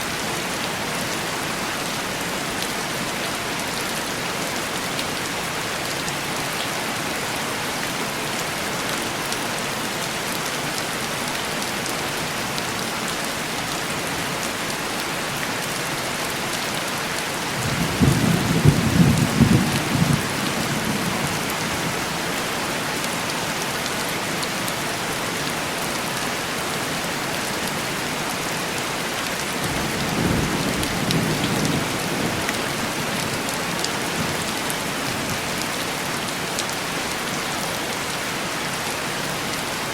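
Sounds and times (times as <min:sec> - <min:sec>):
heavy rain on window glass: 0:16.9 - 0:23.0, 0:28.6 - 0:36.8.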